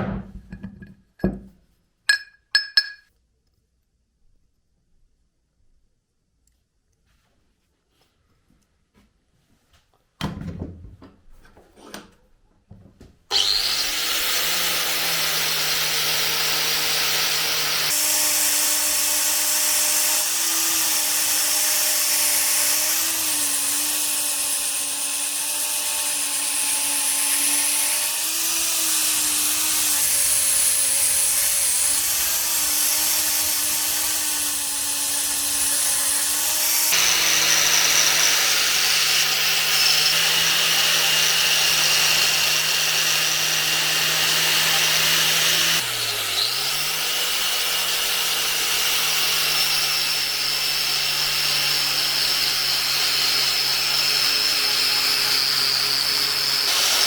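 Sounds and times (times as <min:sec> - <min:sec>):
knocks and handling sounds: 0:00.0 - 0:03.2
power tool motor running: 0:13.3 - 0:57.0.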